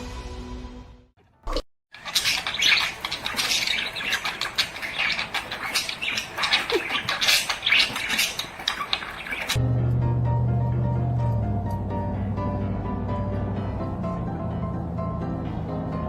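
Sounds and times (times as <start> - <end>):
birds squawking and chattering: 2.0 - 9.6.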